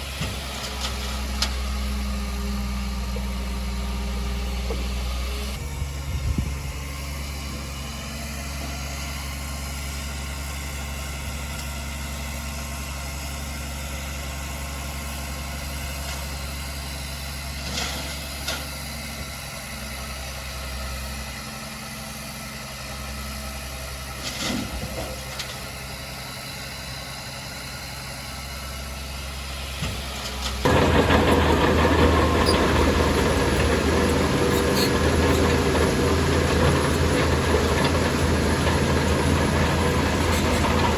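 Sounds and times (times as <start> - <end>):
diesel engine idling: 0.0 - 17.6, 25.1 - 40.9
rough rattling noise: 30.3 - 40.9.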